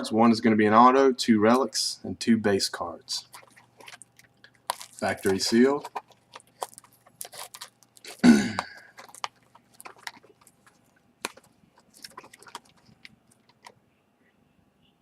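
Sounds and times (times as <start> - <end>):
card box crinkling while handled: 3.2 - 13.8
person clearing throat: 8.1 - 8.9.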